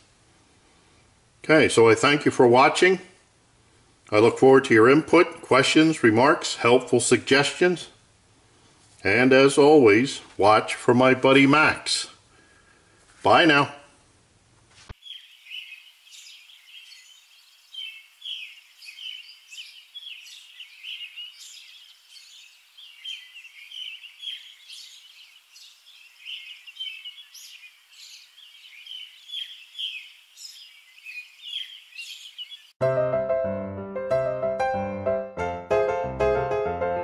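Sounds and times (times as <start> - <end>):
small songbirds chirping: 15.0 - 32.8.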